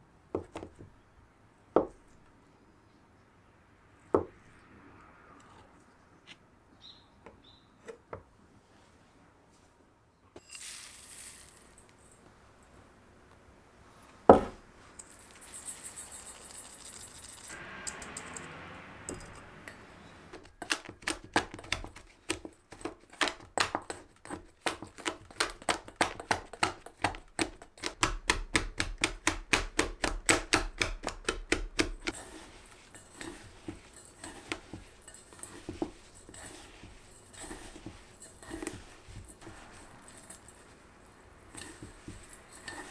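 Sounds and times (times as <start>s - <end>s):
utensil beating against a bowl: 15.0s - 42.9s.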